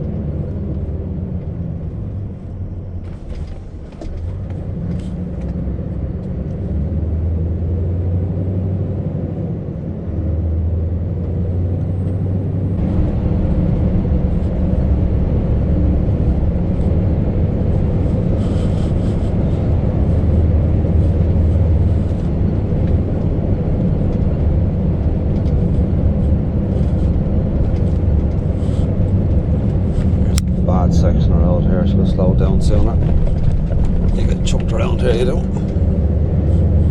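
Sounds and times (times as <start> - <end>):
truck engine droning: 0.0 - 36.9
road hiss: 18.0 - 19.6.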